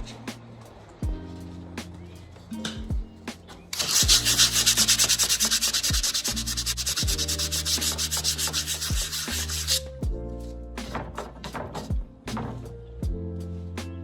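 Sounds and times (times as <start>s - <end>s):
sandpaper sanding wood: 3.8s - 9.9s.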